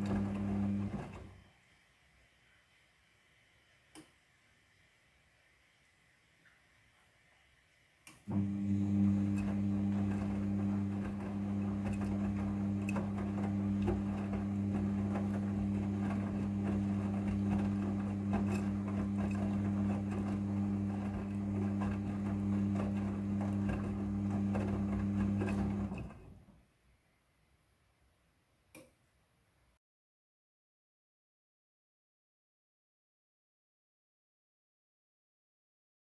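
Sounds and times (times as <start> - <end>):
washing machine motor hum: 0.0 - 1.5, 8.3 - 26.5.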